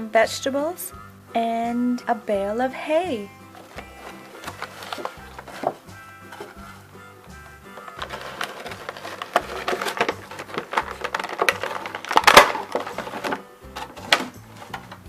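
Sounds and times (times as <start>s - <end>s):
background music: 0.0s - 15.0s
toy packaging clicks and crackles: 3.6s - 15.0s.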